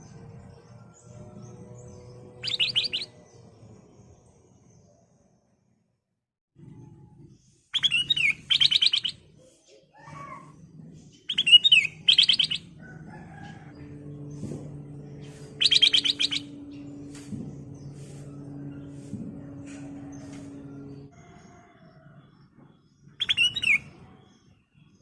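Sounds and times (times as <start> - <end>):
bird chattering song: 1.4 - 3.5, 7.7 - 14.0, 14.9 - 19.0, 23.0 - 24.6.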